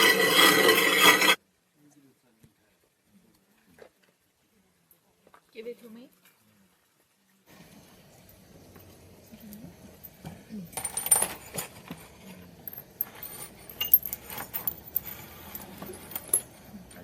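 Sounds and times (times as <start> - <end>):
ceramic pieces clinking: 12.7 - 16.6.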